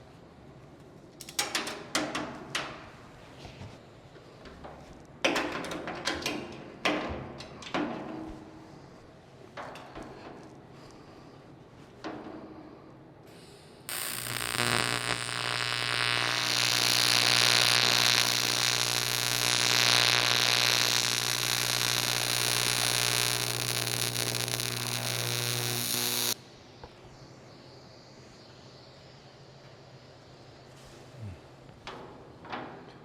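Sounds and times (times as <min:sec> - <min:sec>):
welding arc buzzing and hissing: 0:13.9 - 0:26.4.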